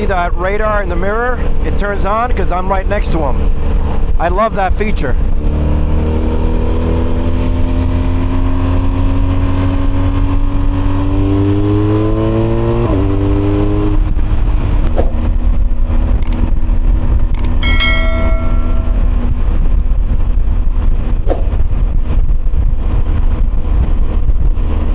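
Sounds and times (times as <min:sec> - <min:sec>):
motorcycle engine accelerating: 0:05.2 - 0:24.9
brief pitched tone: 0:17.6 - 0:19.3.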